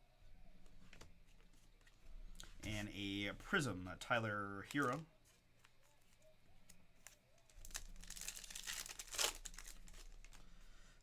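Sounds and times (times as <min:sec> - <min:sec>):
foil pack tearing and crinkling: 0:07.0 - 0:10.4.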